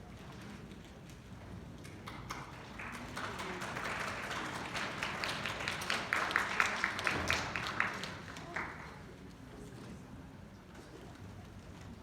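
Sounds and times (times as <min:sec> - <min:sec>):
sharp hand claps: 0:02.1 - 0:08.8
audience applause: 0:02.1 - 0:09.0.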